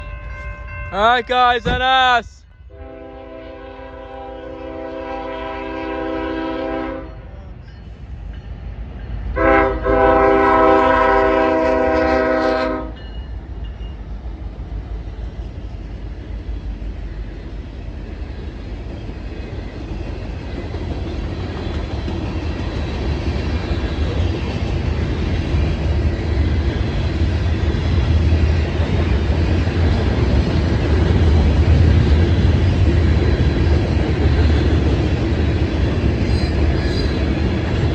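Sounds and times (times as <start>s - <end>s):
freight train rumbling past: 0.0s - 37.9s
locomotive air horn blasts: 2.7s - 7.2s, 9.4s - 13.0s.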